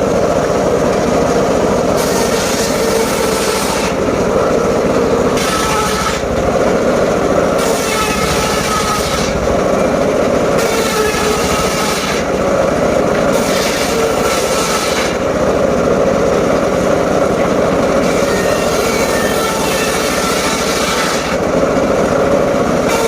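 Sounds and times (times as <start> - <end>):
sawmill engine running: 0.0 - 23.0
saw blade cutting wood: 1.8 - 6.8, 7.4 - 15.3, 17.4 - 21.4, 22.8 - 23.0.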